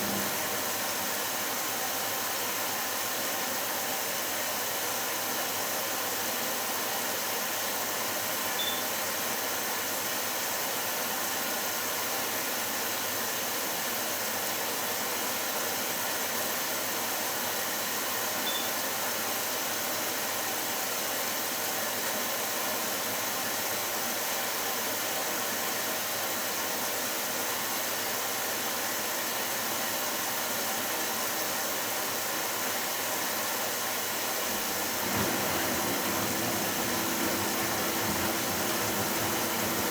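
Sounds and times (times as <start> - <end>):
washing machine running: 0.0 - 2.1, 34.4 - 39.9.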